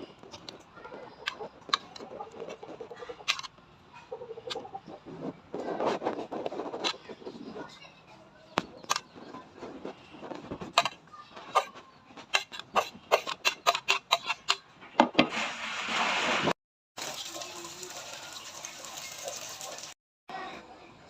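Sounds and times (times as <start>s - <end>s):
utensils and dishes clinking: 10.7s - 14.7s.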